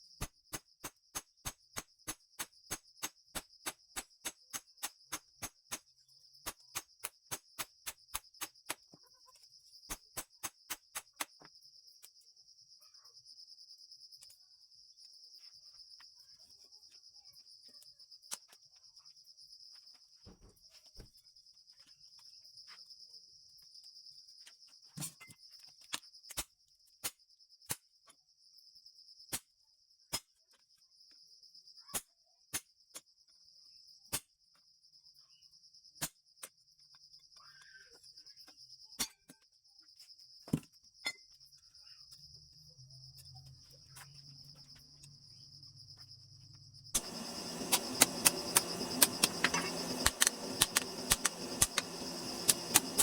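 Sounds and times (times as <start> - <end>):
crickets trilling: 0.0 - 53.0
low hum: 47.0 - 53.0.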